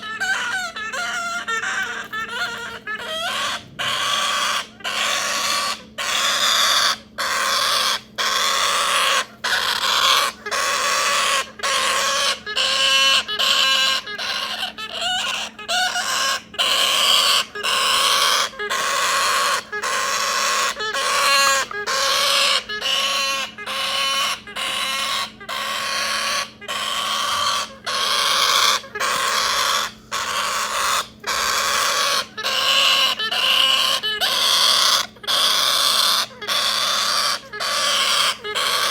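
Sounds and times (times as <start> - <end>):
bird chick begging calls: 0.0 - 38.9.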